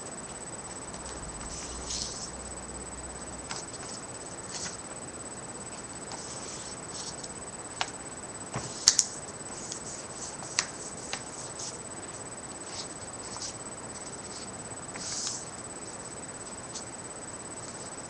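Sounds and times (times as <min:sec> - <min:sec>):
paper crinkling and rustling: 0:03.5 - 0:04.8, 0:12.6 - 0:15.5
paper clicks and taps: 0:07.8 - 0:09.1, 0:10.4 - 0:11.3.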